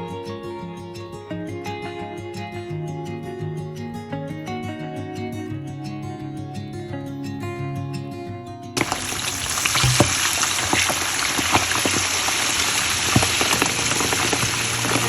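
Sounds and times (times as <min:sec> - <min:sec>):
acoustic guitar music: 0:00.0 - 0:15.0
food sizzling in frying pan: 0:08.8 - 0:15.0.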